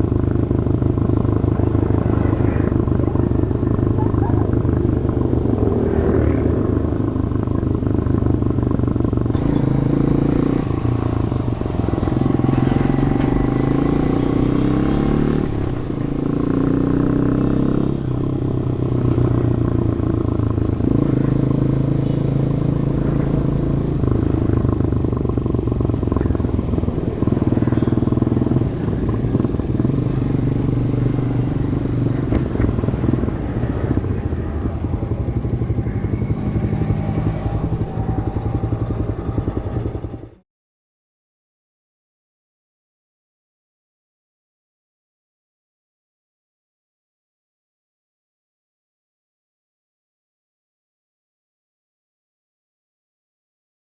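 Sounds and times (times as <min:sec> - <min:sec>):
motorcycle engine running: 0:00.0 - 0:40.4.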